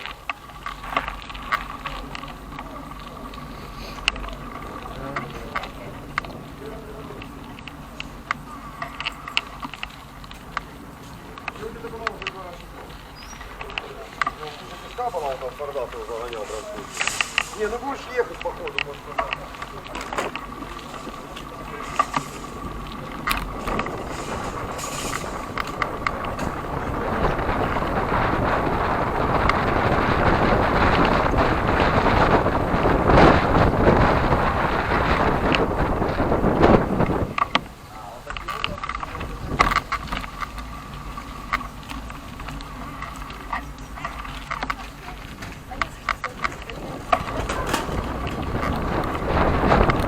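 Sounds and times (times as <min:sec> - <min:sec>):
sharp rattling clicks: 0:00.0 - 0:50.0
wind and road rush: 0:00.0 - 0:50.0.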